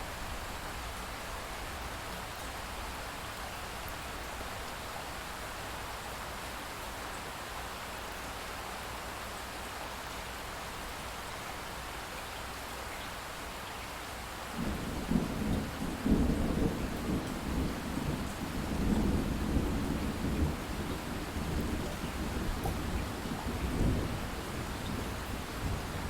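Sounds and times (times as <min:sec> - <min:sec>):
light rain falling: 0:00.0 - 0:26.0
thunder rumbling: 0:14.6 - 0:26.0.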